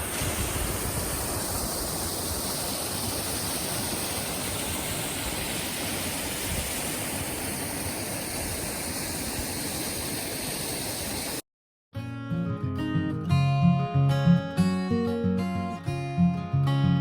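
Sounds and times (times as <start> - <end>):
waterfall roaring: 0.0 - 11.4
strummed acoustic guitar music: 12.0 - 17.0.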